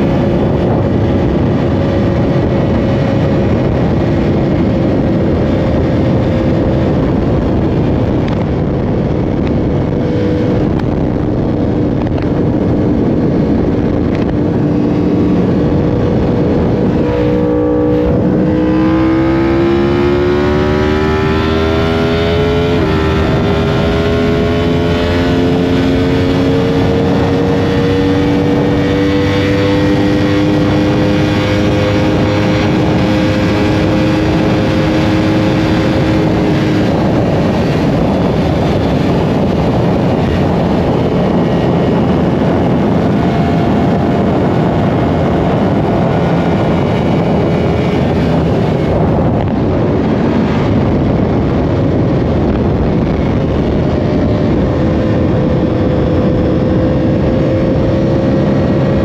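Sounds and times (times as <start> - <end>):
motorcycle engine accelerating: 0.0 - 59.0
wind rush: 0.0 - 59.0.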